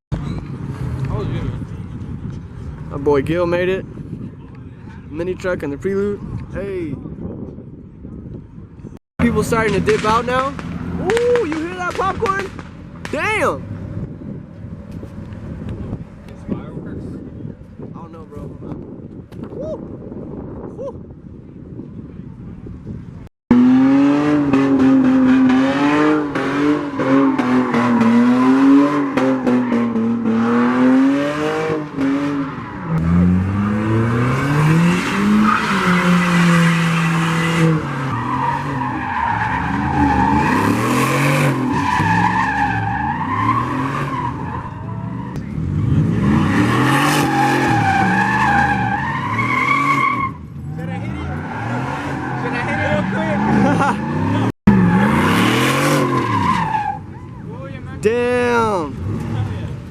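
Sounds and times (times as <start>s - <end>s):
car engine revving: 23.5s - 57.0s.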